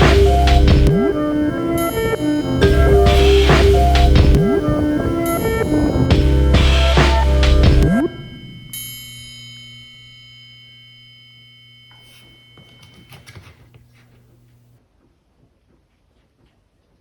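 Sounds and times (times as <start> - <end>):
low music notes: 0.0 - 8.8
bell-like chime ringing: 0.0 - 13.5.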